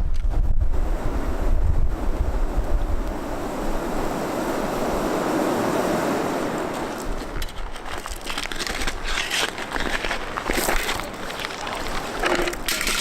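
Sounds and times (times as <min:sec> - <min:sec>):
wind buffeting microphone: 0:00.0 - 0:13.0
river water rushing: 0:03.3 - 0:13.0.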